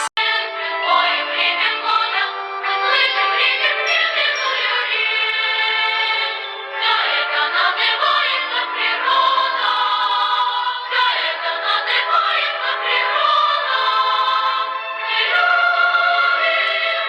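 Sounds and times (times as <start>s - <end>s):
choir singing in high voices: 0.0s - 17.0s.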